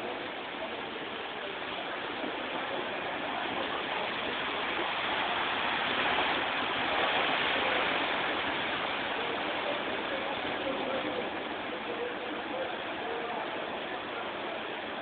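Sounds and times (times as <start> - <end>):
water rushing on street: 0.0 - 15.0.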